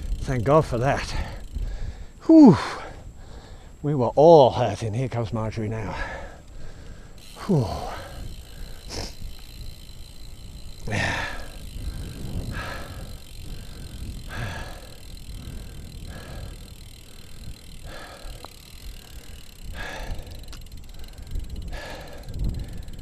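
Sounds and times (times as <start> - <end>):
wind on microphone: 0.0 - 2.2, 7.7 - 23.0
person breathing hard: 1.2 - 3.8, 5.9 - 9.3, 10.8 - 23.0.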